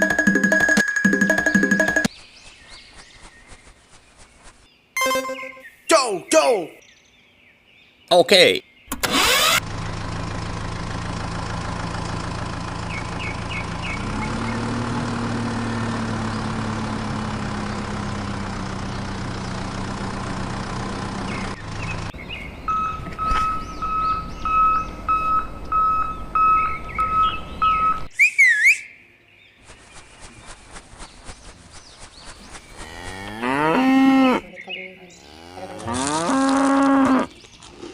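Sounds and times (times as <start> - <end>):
electronic beeping: 0.0 - 2.1, 5.0 - 5.8
vehicle engine running: 9.0 - 28.1
up-and-down whistle: 22.7 - 29.0.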